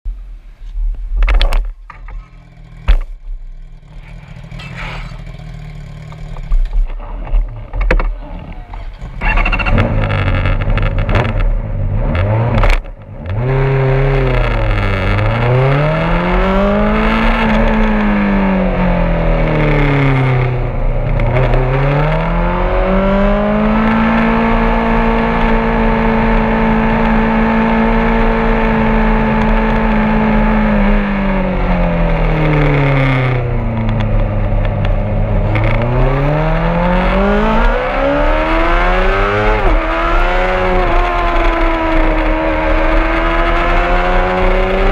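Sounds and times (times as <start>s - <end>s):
motorcycle engine at speed: 1.2s - 44.9s.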